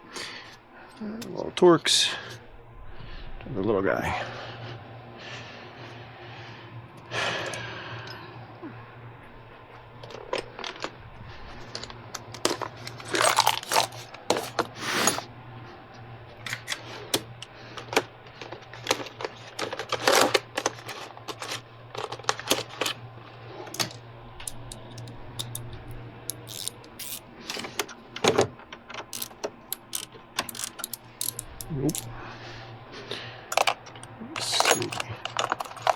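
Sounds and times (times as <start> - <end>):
low hum: 0.0 - 35.9
metal tools clinking: 11.6 - 15.2, 17.8 - 23.0, 23.6 - 27.8, 29.1 - 32.2, 33.5 - 35.9
metal tools scraping: 11.6 - 15.2, 29.1 - 32.2, 33.5 - 35.9.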